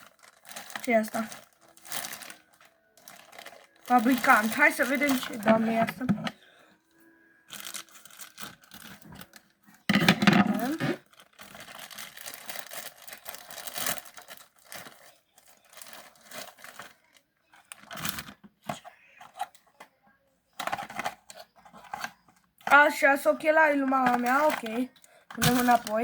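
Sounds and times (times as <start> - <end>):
packaging torn and crinkled: 0.0 - 6.0, 7.5 - 9.8, 10.5 - 18.4, 25.4 - 26.0.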